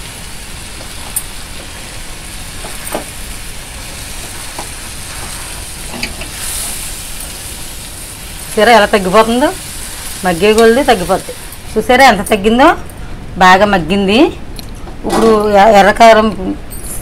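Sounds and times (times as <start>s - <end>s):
food sizzling in oil: 0.0s - 12.5s.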